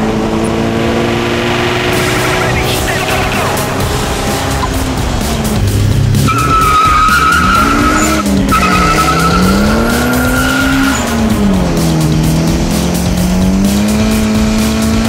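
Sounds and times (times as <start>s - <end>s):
car engine at full throttle: 0.0s - 15.0s
high-pitched whine: 0.8s - 11.5s.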